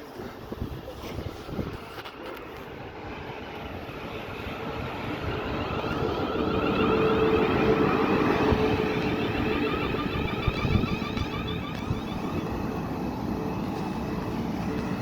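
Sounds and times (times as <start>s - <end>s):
electric train rumbling: 0.0s - 15.0s
traction motor whine: 3.4s - 15.0s.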